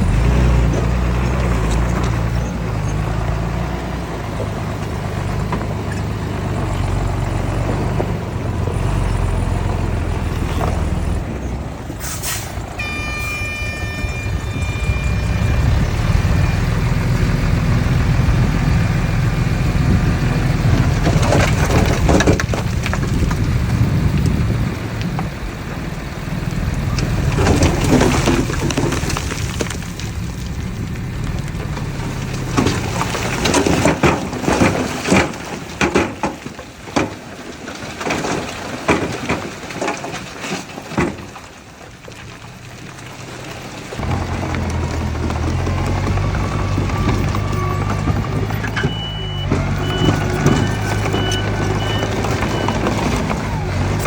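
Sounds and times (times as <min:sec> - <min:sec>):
diesel engine rumbling: 0:00.0 - 0:54.0
soil and stones crunching: 0:00.0 - 0:54.0
loud knocks and clattering: 0:12.8 - 0:24.0, 0:31.4 - 0:41.5.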